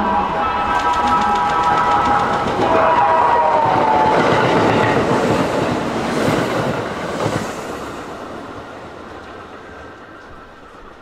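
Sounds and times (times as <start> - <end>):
electric train running past: 0.0 - 11.0.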